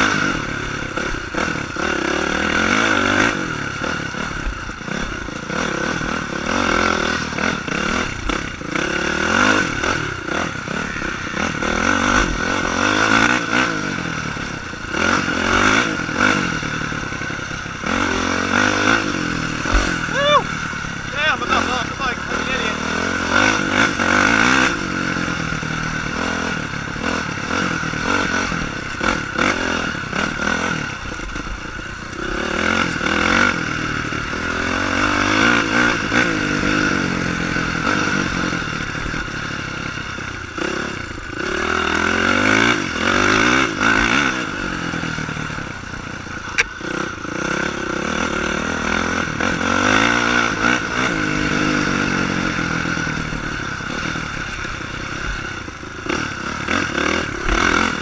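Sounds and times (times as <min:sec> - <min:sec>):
dirt bike engine revving: 0:00.0 - 0:58.0
sharp click: 0:46.4 - 0:46.8.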